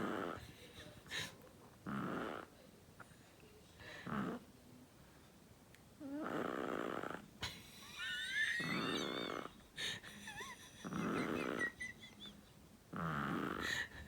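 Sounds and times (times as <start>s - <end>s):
dog snoring: 0.0s - 0.4s, 1.8s - 2.5s, 4.0s - 4.4s, 6.0s - 7.2s, 8.6s - 9.5s, 10.8s - 11.8s, 12.9s - 13.8s.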